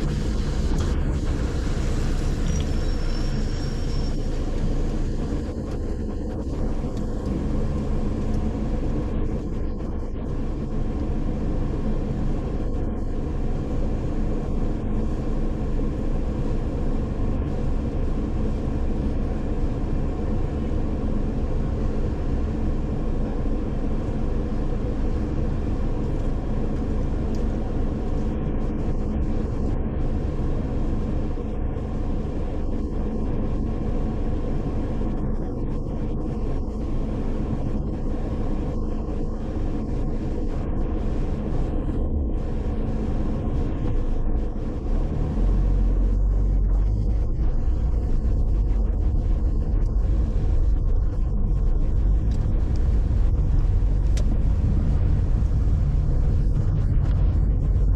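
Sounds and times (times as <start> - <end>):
car engine and road noise: 0.0 - 57.9
faint high whistle: 2.4 - 4.4.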